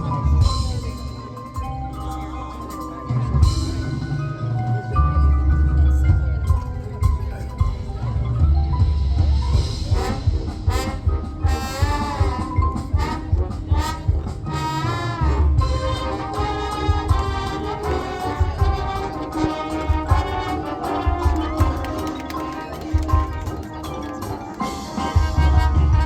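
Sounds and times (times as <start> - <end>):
marching band playing: 0.0 - 26.0
brass chords: 9.0 - 26.0
drum hits: 15.4 - 26.0.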